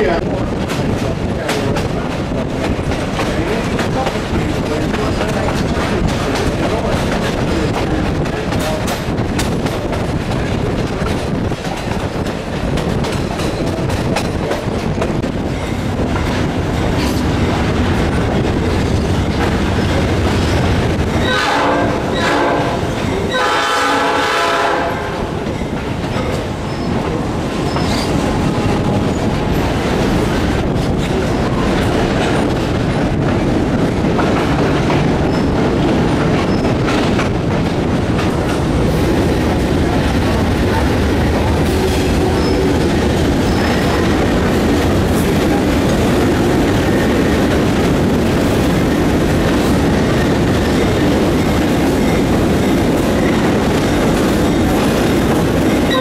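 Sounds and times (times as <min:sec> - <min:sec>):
wheels rumbling on rails: 0:00.0 - 0:56.0
locomotive horn: 0:21.2 - 0:25.4.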